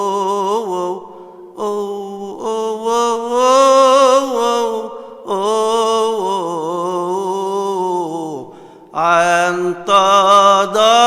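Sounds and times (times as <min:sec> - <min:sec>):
man chanting a hymn: 0:00.0 - 0:11.0.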